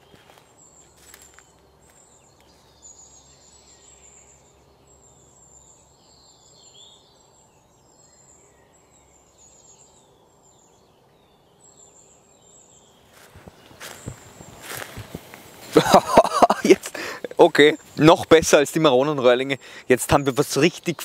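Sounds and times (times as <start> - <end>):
lower bird chirps: 0.0 - 21.0
small birds high calls: 0.0 - 21.0
faint background hush: 13.1 - 21.0.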